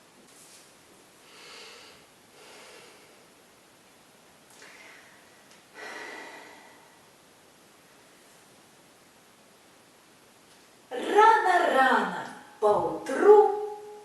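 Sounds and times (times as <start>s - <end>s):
person breathing: 1.2s - 3.4s, 4.6s - 7.1s.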